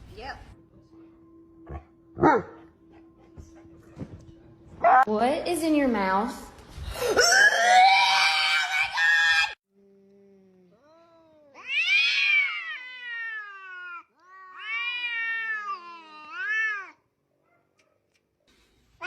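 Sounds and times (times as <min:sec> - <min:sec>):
cat yowling: 0:10.8 - 0:17.0.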